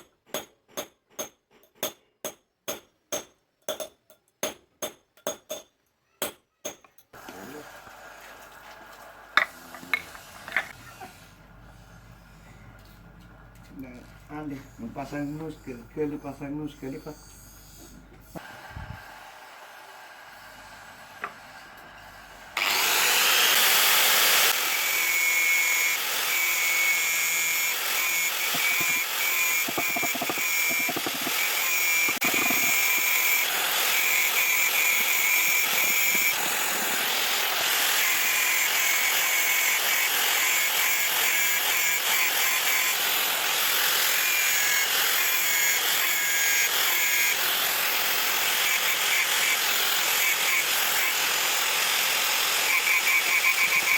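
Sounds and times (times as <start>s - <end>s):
power tool whining on metal: 17.3s - 53.9s.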